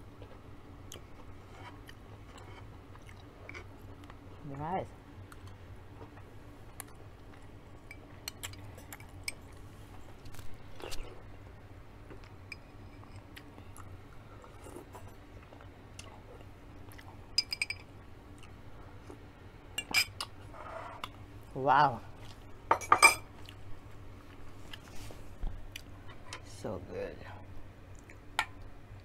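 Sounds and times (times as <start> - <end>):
person chewing: 0.9 - 4.2, 10.2 - 11.2, 13.2 - 17.2, 23.4 - 23.6, 24.2 - 25.0, 25.7 - 26.3.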